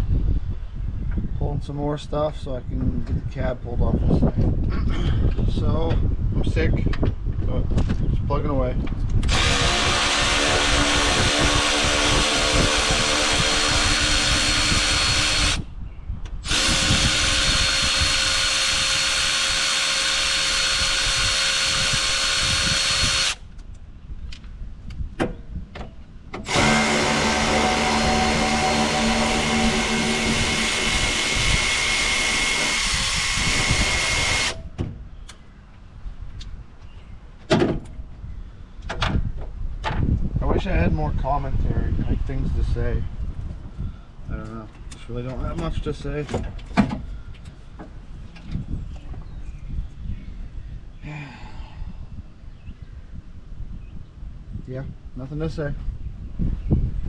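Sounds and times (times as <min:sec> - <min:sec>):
handheld power tool running: 0:09.2 - 0:15.6, 0:16.4 - 0:23.4, 0:26.4 - 0:34.6.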